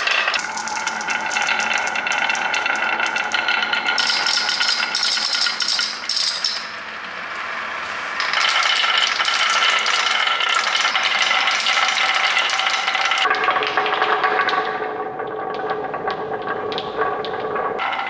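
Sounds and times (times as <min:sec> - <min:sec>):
small hard objects rattling: 0:00.0 - 0:06.7, 0:08.2 - 0:13.3.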